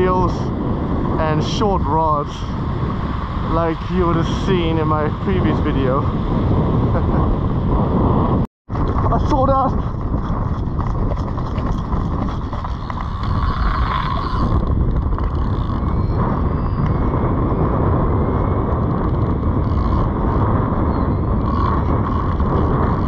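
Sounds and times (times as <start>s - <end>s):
wind rumbling over microphone: 0.0s - 23.0s.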